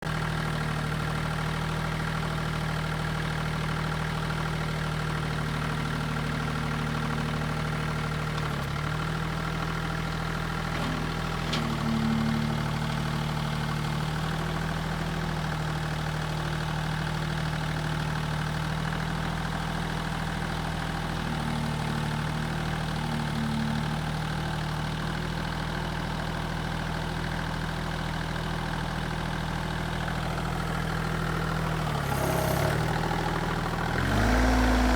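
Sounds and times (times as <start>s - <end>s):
tractor diesel engine idling: 0.0s - 34.9s.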